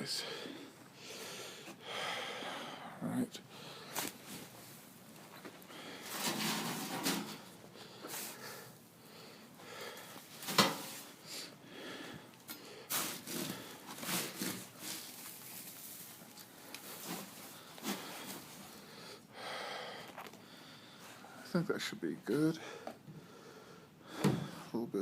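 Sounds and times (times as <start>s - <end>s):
hay being handled: 12.9s - 18.4s.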